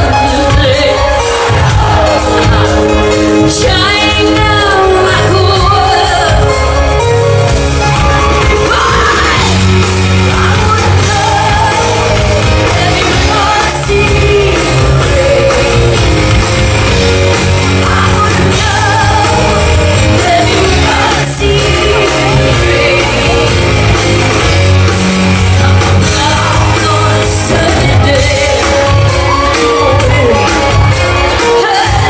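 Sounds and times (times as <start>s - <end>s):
woman singing: 0.0s - 6.8s, 8.0s - 32.0s
rock band playing: 0.0s - 32.0s.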